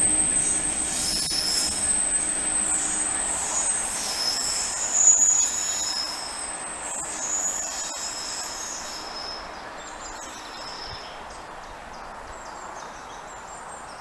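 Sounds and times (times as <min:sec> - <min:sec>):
train wheels squealing: 0:00.0 - 0:11.1
rail rumble: 0:00.0 - 0:13.5.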